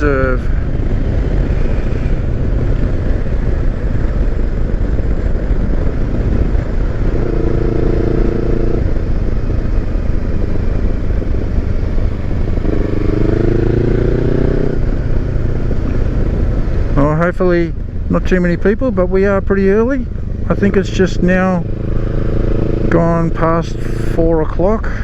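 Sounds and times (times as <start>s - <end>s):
motorcycle engine running: 0.0s - 25.0s
wind and road noise: 0.0s - 25.0s.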